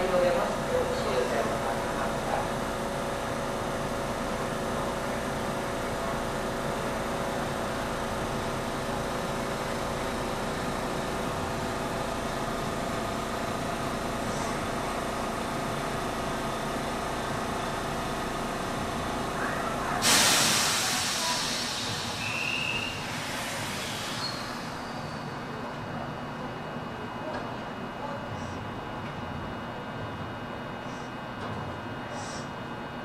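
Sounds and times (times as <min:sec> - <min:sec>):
electric train hum: 0:00.0 - 0:33.0
compressed air hiss: 0:20.0 - 0:22.4.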